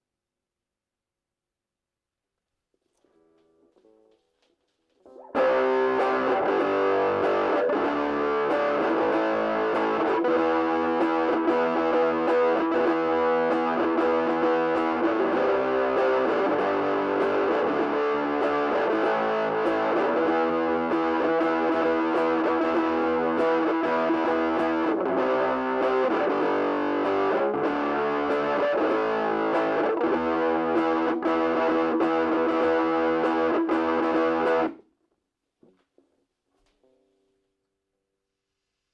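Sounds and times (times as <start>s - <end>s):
distorted electric guitar: 5.1s - 34.8s.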